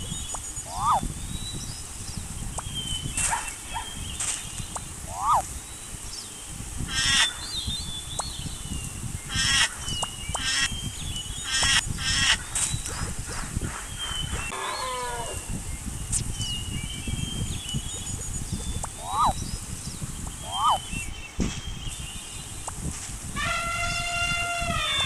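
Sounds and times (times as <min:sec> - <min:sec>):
animals calling: 0:00.0 - 0:01.3, 0:02.6 - 0:05.7, 0:06.8 - 0:08.4, 0:09.2 - 0:15.9, 0:16.6 - 0:21.2, 0:22.7 - 0:25.0.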